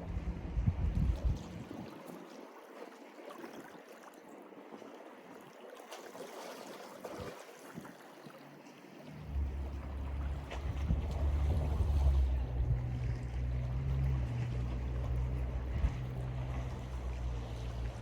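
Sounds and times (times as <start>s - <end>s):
wind buffeting microphone: 0.0s - 2.0s, 9.2s - 18.0s
sea waves lapping at shore: 0.0s - 18.0s.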